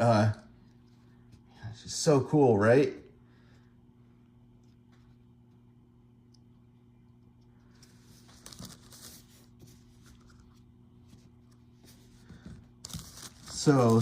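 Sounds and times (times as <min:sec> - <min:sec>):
faint steady hum: 0:00.0 - 0:14.0
paper rustling: 0:07.6 - 0:14.0.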